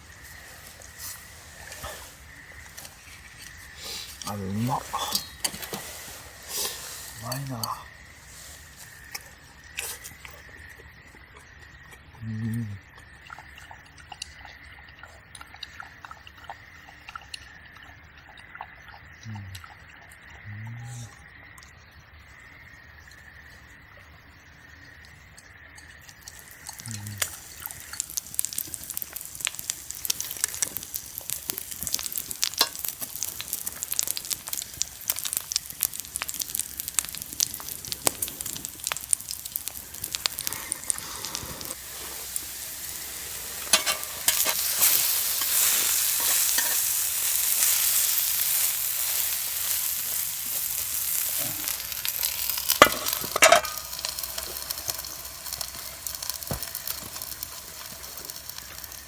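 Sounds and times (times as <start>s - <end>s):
food sizzling in a pan: 0.0s - 11.0s, 23.0s - 59.0s.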